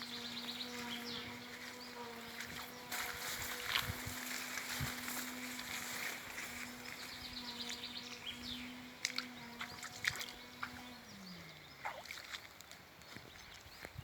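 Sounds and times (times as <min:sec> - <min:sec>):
distant motor humming: 0:00.0 - 0:12.5.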